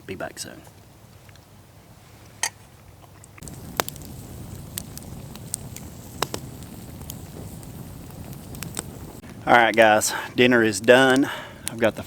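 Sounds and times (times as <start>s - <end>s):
campfire crackling and popping: 3.0s - 12.0s.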